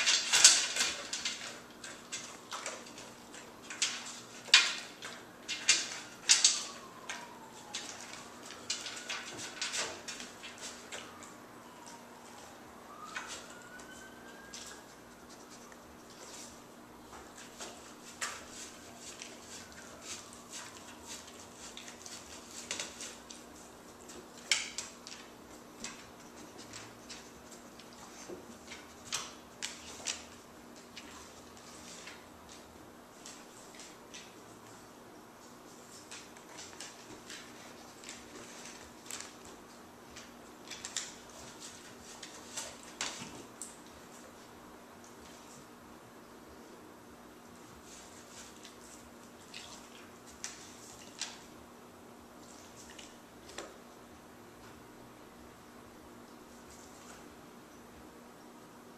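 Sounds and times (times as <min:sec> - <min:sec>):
pet crunching food: 0:47.6 - 0:51.5.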